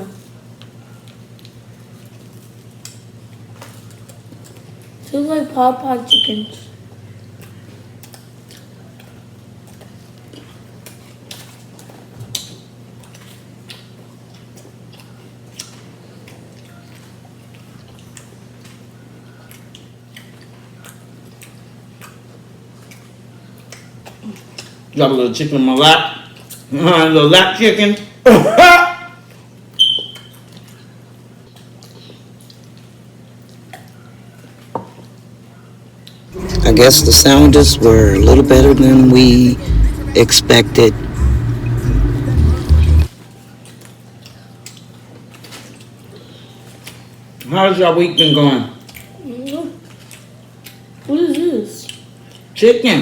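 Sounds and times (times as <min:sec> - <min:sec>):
eating sounds: 0:07.2 - 0:18.7
low hum: 0:36.3 - 0:43.1.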